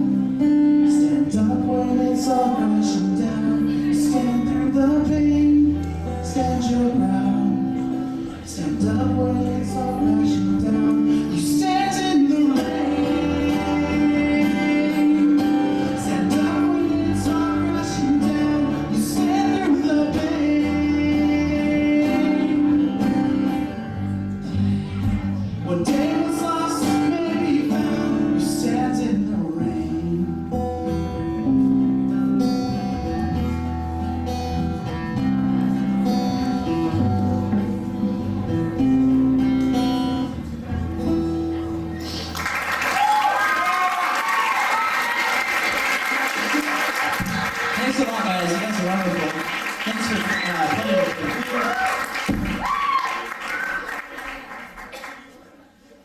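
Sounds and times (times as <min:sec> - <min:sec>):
person singing: 0:00.0 - 0:40.3
strummed acoustic guitar: 0:00.0 - 0:42.2
bass guitar: 0:00.0 - 0:43.2, 0:51.8 - 0:53.0.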